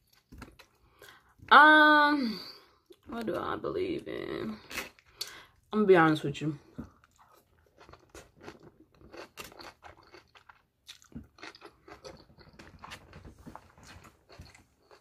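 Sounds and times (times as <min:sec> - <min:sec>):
chewing with quiet crunches: 0:06.8 - 0:15.0.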